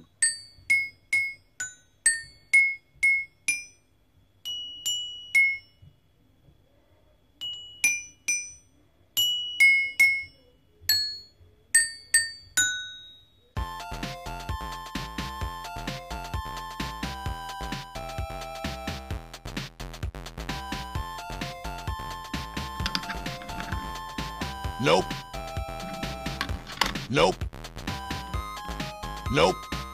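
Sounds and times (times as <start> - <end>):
toy xylophone notes: 0.0 - 3.8, 4.5 - 5.8, 7.4 - 13.3, 22.4 - 27.3
background music: 13.6 - 29.9.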